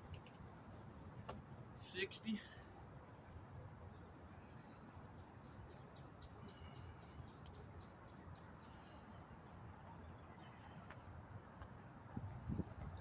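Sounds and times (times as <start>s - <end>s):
wind rumble on microphone: 12.0s - 13.0s.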